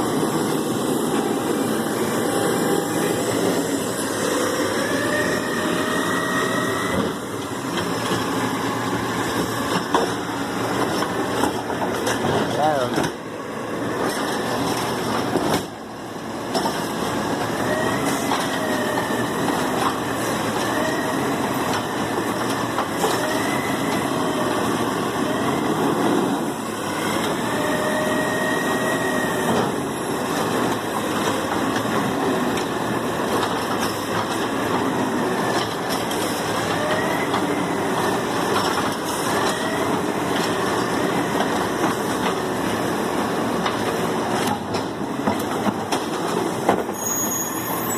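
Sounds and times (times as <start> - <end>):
garbage truck mechanical din: 0.0 - 47.9
metal squealing: 46.9 - 47.9.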